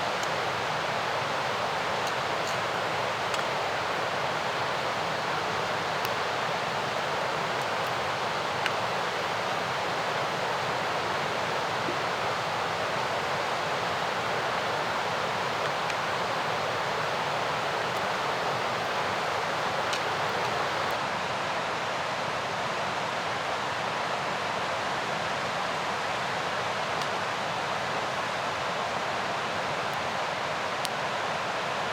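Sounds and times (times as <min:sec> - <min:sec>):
river rushing: 0:00.0 - 0:21.1
faint ticks: 0:02.0 - 0:21.0.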